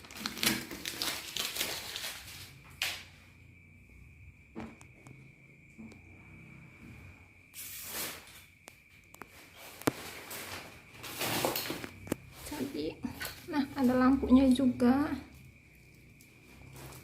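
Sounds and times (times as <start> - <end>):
rustling packaging: 0.0 - 3.0, 9.2 - 13.8
faint high whine: 3.0 - 12.8.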